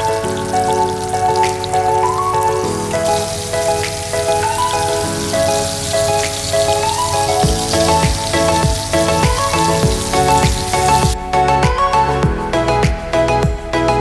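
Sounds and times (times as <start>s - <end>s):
fish frying in oil: 0.0s - 11.2s
background music with held tones: 0.0s - 14.0s
kick drum beat: 7.4s - 13.8s.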